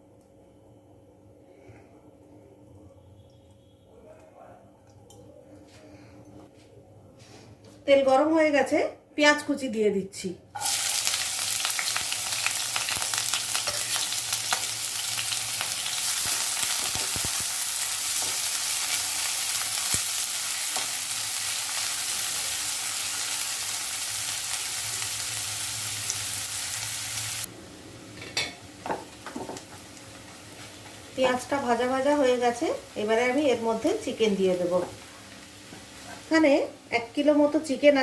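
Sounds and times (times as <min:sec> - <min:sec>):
onion sizzling in hot oil: 0:10.6 - 0:37.9.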